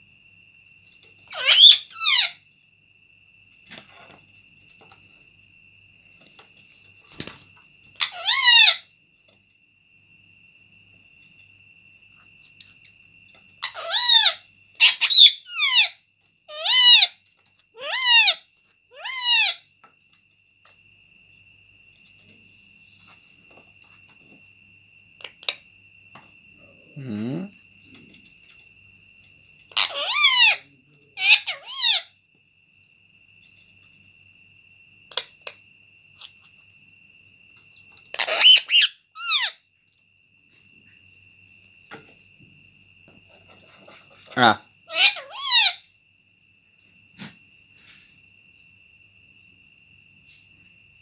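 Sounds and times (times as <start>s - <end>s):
parrot squawking: 1.3s - 2.4s, 8.0s - 8.9s, 13.6s - 17.2s, 17.8s - 19.6s, 29.7s - 32.1s, 38.1s - 39.6s, 44.9s - 45.8s.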